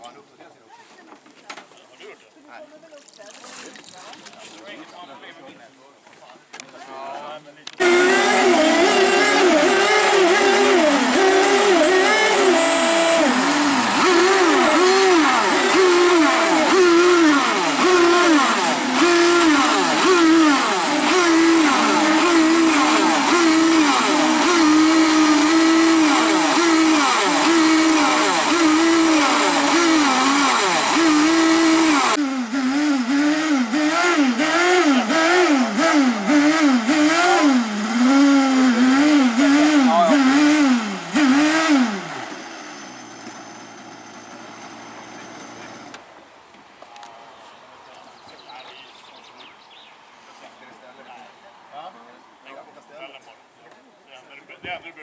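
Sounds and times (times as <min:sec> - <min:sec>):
small boat engines revving: 0:07.8 - 0:46.1.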